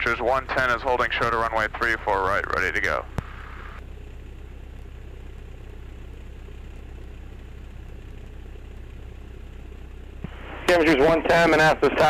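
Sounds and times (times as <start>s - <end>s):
small aircraft engine idling: 0.0s - 12.0s.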